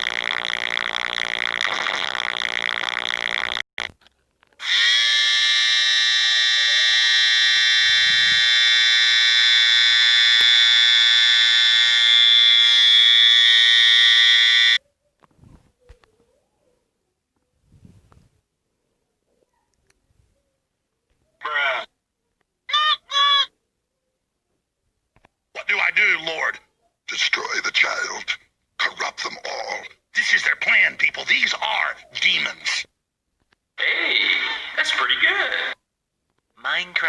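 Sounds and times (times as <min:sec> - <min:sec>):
harsh buzzing: 0:00.0 - 0:04.0, 0:04.6 - 0:14.8
shrill alarm-like tone: 0:04.6 - 0:14.8.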